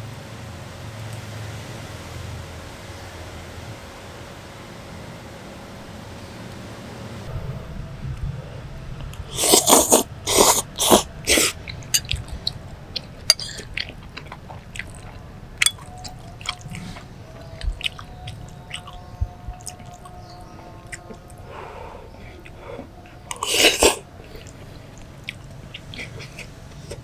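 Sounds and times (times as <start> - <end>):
person chewing noodles: 9.1 - 27.0.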